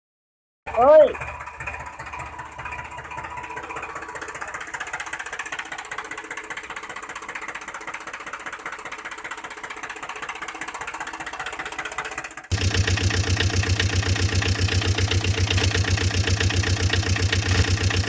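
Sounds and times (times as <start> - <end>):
tractor engine chugging: 0.7 - 18.0
deeper louder engine sound: 12.5 - 18.0.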